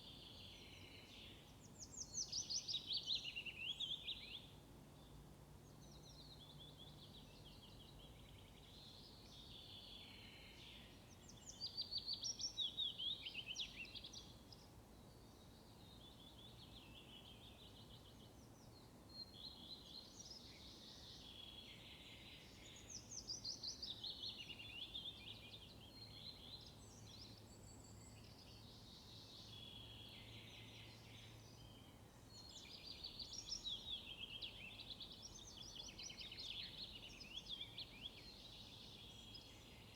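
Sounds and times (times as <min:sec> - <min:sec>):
faint outdoor hiss: 0:00.0 - 0:39.9.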